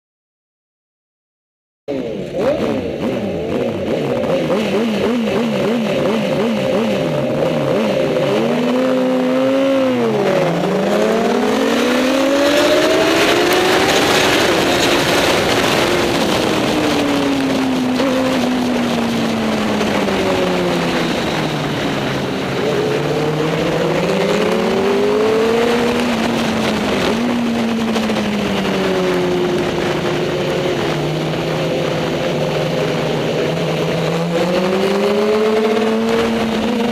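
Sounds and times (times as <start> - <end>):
motorcycle engines revving: 1.9 - 36.9.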